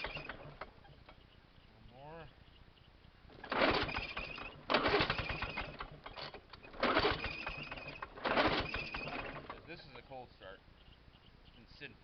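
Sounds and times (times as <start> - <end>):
mower engine firing briefly: 0.0 - 0.7, 3.3 - 9.8
recoil starter pulls: 0.0 - 1.2, 3.3 - 9.9.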